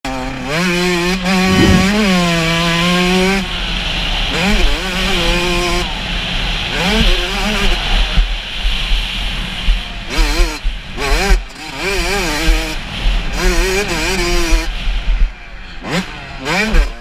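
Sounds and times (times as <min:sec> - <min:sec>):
motocross engine revving high: 0:01.3 - 0:02.1.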